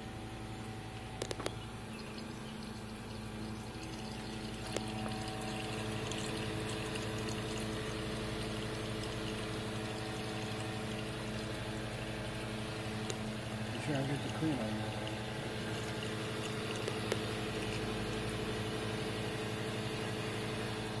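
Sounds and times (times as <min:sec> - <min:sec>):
espresso machine pump humming: 0:00.0 - 0:21.0
coffee pouring into cup: 0:01.2 - 0:21.0.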